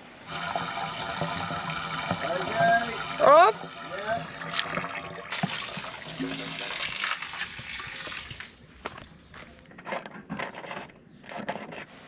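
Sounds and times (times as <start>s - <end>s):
water running from hose into tank: 0.0s - 9.1s
faint scrapes and knocks: 8.8s - 12.0s.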